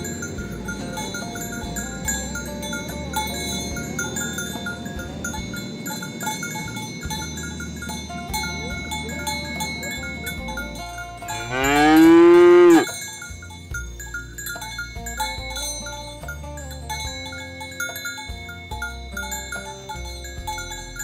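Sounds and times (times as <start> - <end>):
bell-like background music: 0.0 - 21.0
cow mooing: 11.3 - 13.0.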